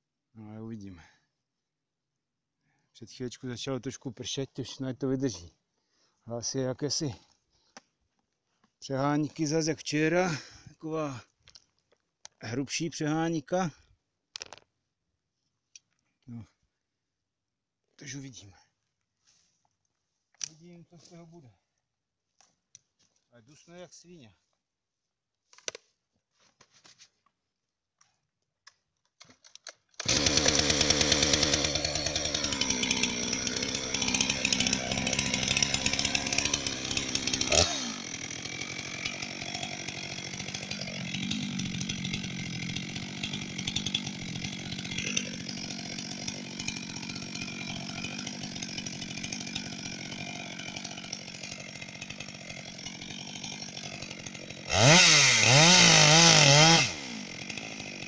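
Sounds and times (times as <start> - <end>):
chainsaw running: 30.0 - 58.0.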